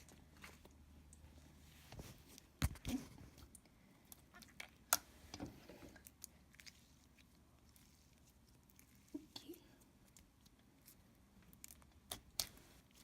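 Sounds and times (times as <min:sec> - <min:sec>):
slime squished by hand: 0:10.0 - 0:13.0.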